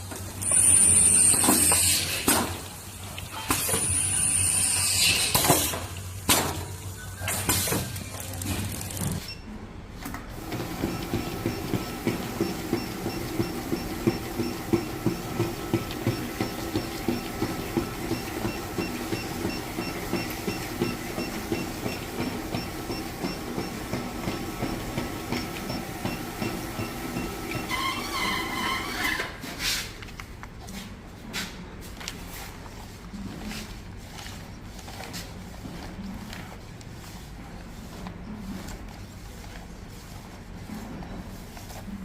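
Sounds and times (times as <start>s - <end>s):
machine clicking rhythmically: 10.4s - 27.6s.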